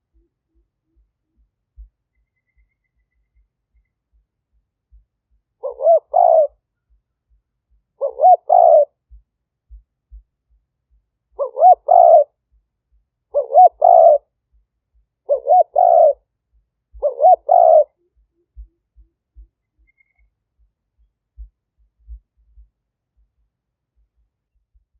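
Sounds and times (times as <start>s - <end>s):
dove cooing: 5.6s - 6.6s, 8.0s - 9.0s, 11.3s - 12.3s, 13.3s - 14.2s, 15.2s - 16.2s, 16.9s - 18.8s.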